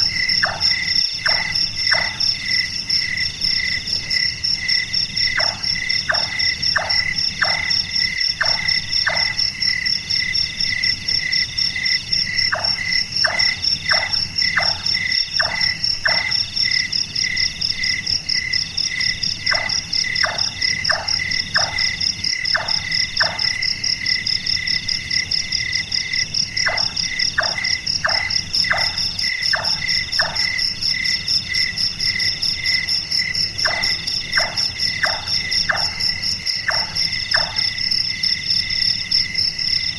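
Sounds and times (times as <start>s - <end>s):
crickets trilling: 0.0s - 39.9s
nightjar knocking calls: 0.4s - 2.2s, 5.3s - 9.4s, 12.5s - 16.3s, 22.5s - 23.6s, 33.6s - 37.7s.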